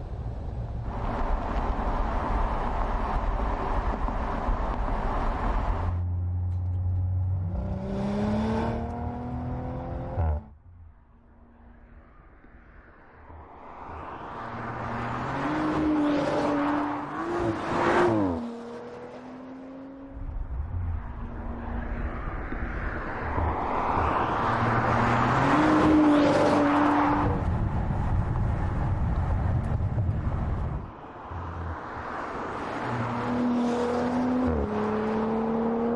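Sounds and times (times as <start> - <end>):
car engine accelerating hard: 1.0 - 10.5.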